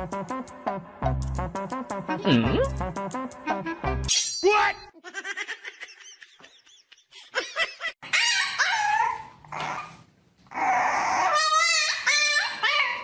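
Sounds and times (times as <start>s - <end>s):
dog whining and yelping: 8.0s - 13.0s.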